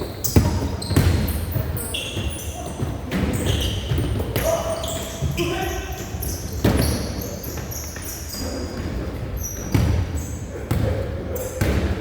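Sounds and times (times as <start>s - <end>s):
shoe squeaks: 0.0s - 10.5s
basketball bouncing: 0.2s - 4.6s
players' voices: 2.2s - 9.1s.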